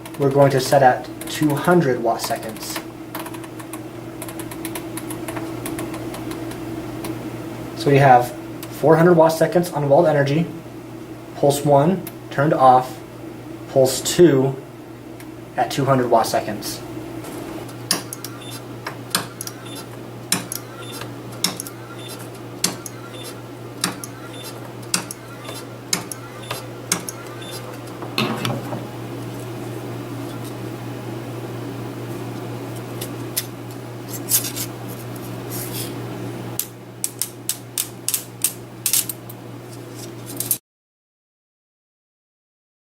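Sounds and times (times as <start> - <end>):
steady electrical hum: 0.0 - 40.6
spot welder sharp clicks: 17.6 - 28.0.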